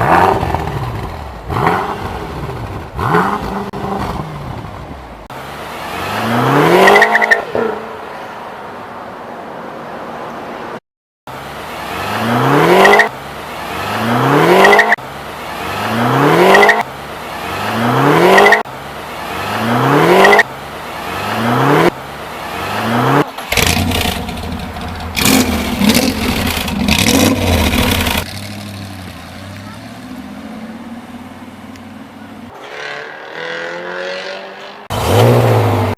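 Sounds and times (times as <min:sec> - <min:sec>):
car engine revving hard: 0:00.0 - 0:04.4, 0:15.6 - 0:16.8, 0:17.4 - 0:18.6, 0:19.3 - 0:20.4, 0:21.0 - 0:30.3, 0:32.6 - 0:35.9.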